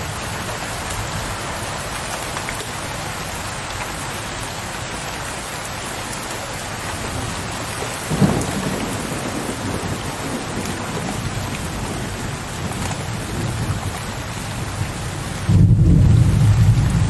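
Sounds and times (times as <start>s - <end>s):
steady rain falling: 0.0s - 17.0s
low thunder rumble: 8.0s - 17.0s.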